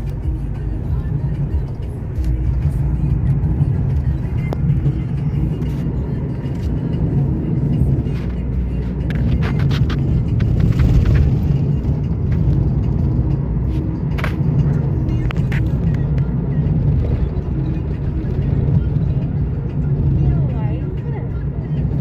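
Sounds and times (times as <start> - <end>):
car engine and road rumble: 0.0 - 22.0
rattles and clicks: 8.0 - 13.3.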